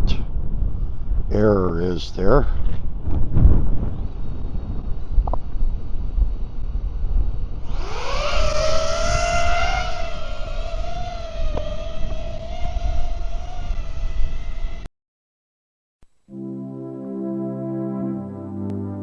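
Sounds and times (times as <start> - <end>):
wind buffeting microphone: 0.0 - 14.8
drone propeller whine: 3.8 - 14.9.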